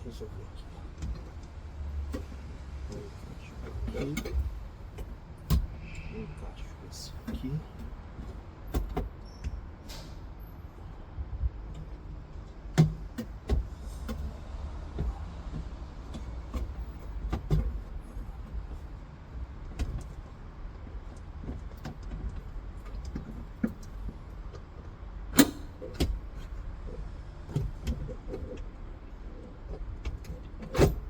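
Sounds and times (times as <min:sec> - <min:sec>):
steady low rumble: 0:10.7 - 0:12.6.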